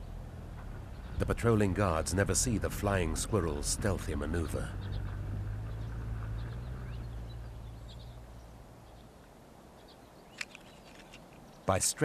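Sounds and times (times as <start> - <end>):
faint bird chirps: 4.4 - 11.8
sharp click: 10.3 - 11.4.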